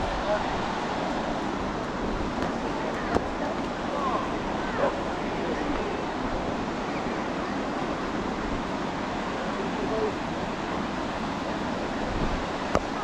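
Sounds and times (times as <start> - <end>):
sea surf rushing: 0.0 - 13.0
wind noise on microphone: 0.0 - 13.0
faint voices of people: 2.5 - 6.2.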